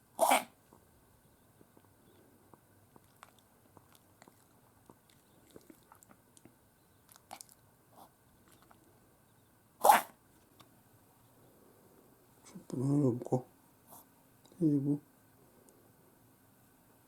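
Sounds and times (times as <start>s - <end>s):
dog snorting sneeze: 0.2s - 0.6s, 9.8s - 10.2s.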